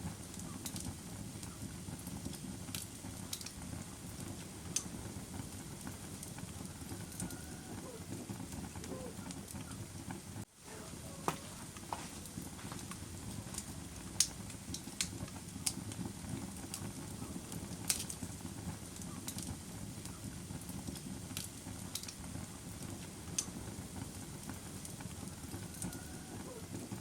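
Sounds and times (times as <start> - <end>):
bonfire low rumble: 0.0 - 27.0
wood crackling and popping: 0.0 - 27.0.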